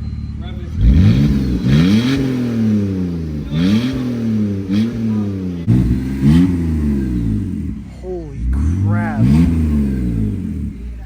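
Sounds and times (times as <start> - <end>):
car engine revving open exhaust: 0.0 - 11.0.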